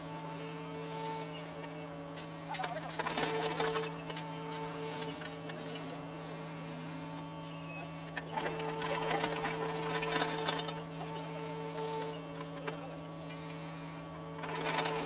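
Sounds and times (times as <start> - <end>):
excavator engine humming: 0.0 - 15.0.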